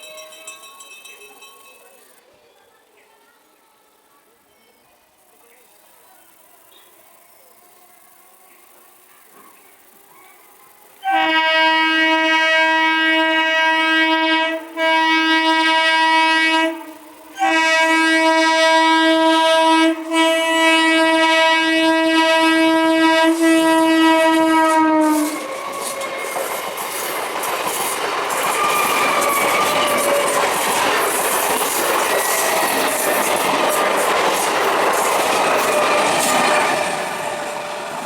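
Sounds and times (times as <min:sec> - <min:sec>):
train horn blast: 0:11.0 - 0:26.6
train wheels clattering: 0:23.2 - 0:38.0.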